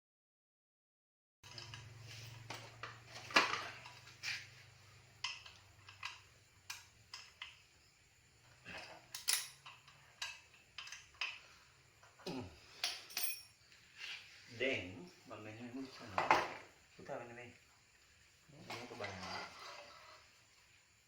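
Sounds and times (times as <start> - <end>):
metal tools clinking: 8.8 - 11.5, 12.8 - 13.7.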